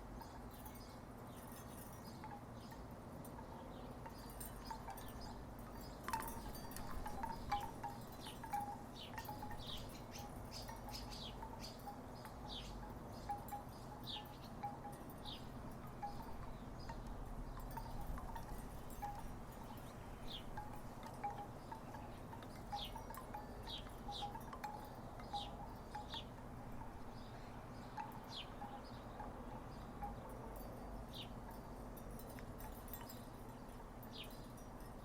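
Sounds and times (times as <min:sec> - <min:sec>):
wooden wind chimes knocking: 0:03.4 - 0:27.1.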